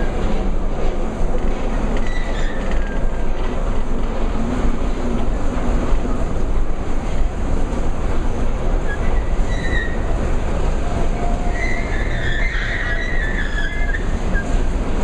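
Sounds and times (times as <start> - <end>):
high wavering squeals: 11.5 - 14.6.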